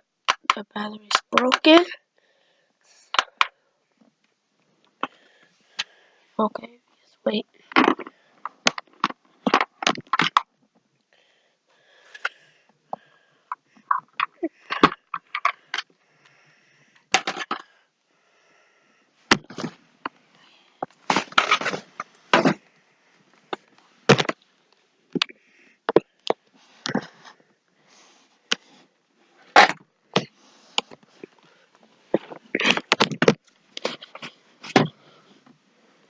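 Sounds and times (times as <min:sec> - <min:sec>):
hard objects knocking and clattering: 0:07.7 - 0:10.5, 0:12.9 - 0:15.9, 0:17.1 - 0:17.7, 0:20.8 - 0:22.6, 0:23.5 - 0:24.4, 0:32.1 - 0:35.0.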